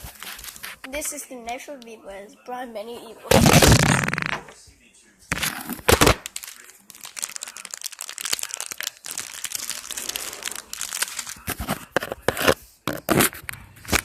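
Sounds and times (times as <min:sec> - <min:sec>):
packaging crinkling and tearing: 0:00.0 - 0:00.8, 0:03.3 - 0:04.2, 0:05.3 - 0:14.0.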